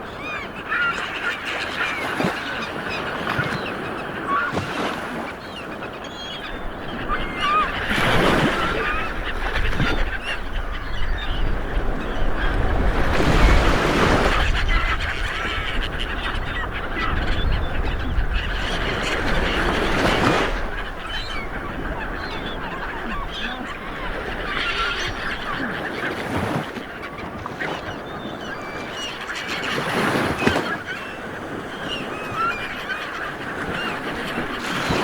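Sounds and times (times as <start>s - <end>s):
sea waves breaking on shore: 0.0s - 35.0s.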